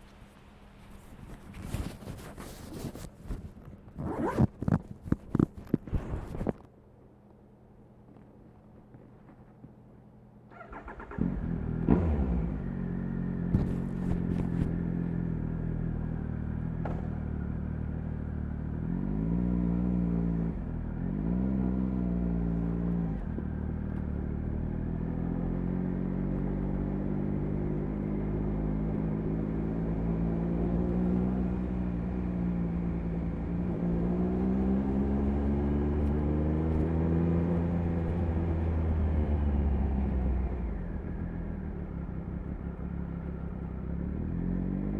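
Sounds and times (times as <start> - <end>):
motorcycle engine starting and idling: 10.5 - 18.6.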